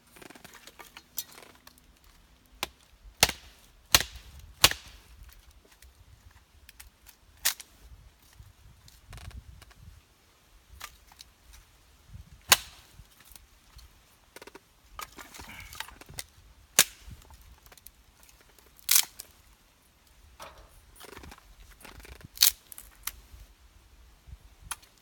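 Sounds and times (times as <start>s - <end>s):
firewood being split: 0.3s - 7.7s, 12.4s - 13.4s, 14.4s - 19.5s, 20.4s - 23.2s.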